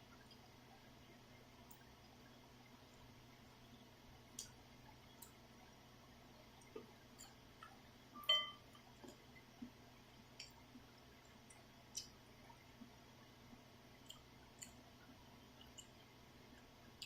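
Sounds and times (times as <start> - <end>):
low steady hum: 0.0 - 17.0
ringing clink: 8.2 - 8.6.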